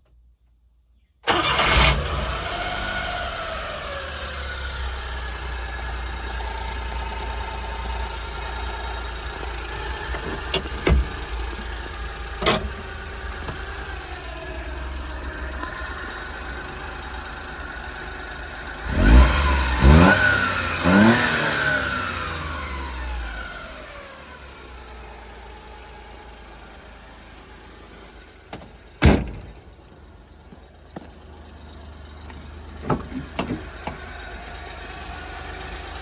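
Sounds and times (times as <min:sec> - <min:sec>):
engine revving: 0:01.3 - 0:26.6
truck engine idling: 0:01.3 - 0:36.0.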